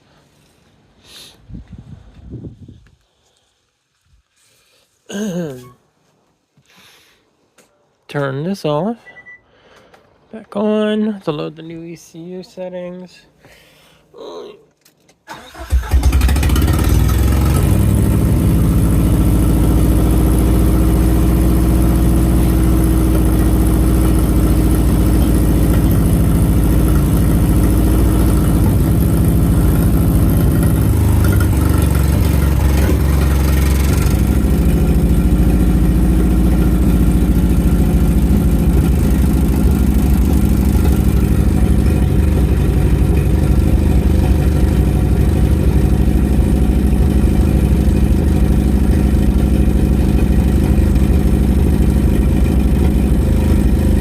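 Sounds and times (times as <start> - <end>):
car engine idling: 15.3 - 54.0.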